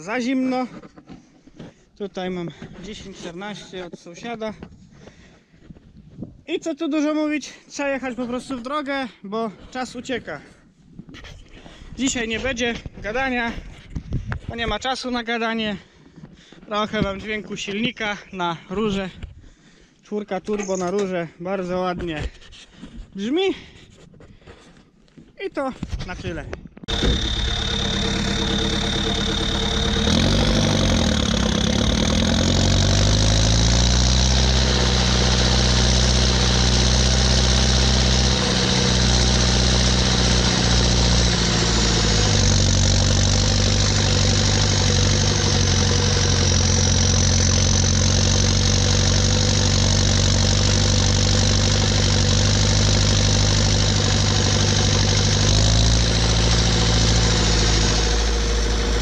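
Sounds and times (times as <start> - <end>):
tractor diesel engine running: 26.9 - 59.0.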